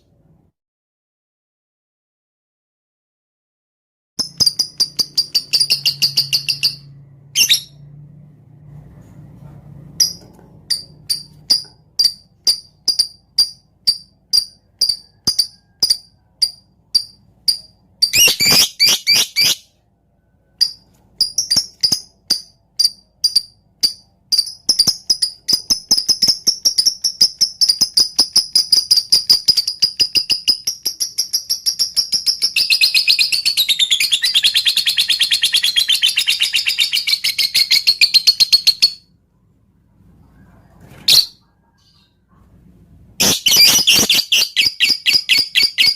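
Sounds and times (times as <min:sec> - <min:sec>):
lovebird chirping and chattering: 0:04.2 - 0:07.9, 0:10.0 - 0:19.7, 0:20.6 - 0:39.2, 0:43.2 - 0:45.9.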